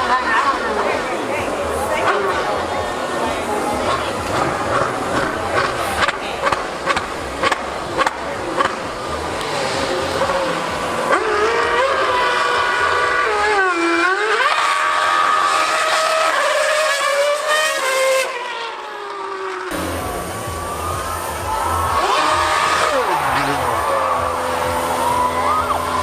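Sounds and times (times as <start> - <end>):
racing car engine screaming past: 1.6 - 26.0.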